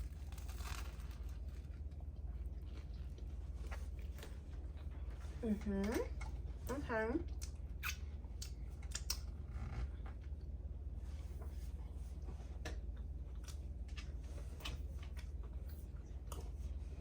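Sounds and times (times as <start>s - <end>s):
person chewing crunchy chips: 0.0s - 4.1s
steady low hum: 0.0s - 17.0s.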